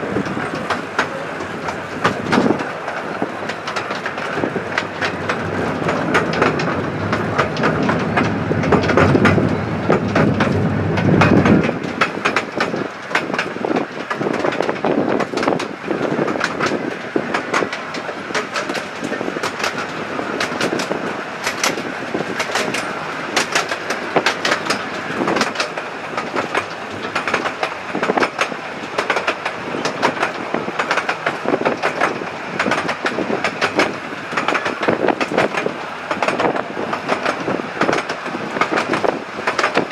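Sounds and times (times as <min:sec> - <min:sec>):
heavy low rumble: 0:00.0 - 0:12.7
train wheels clicking over rail joints: 0:00.0 - 0:39.9.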